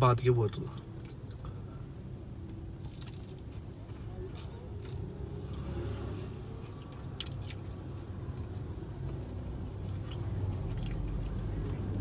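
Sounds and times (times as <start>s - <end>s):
person chewing: 2.8s - 5.6s, 6.5s - 7.9s, 9.9s - 11.4s.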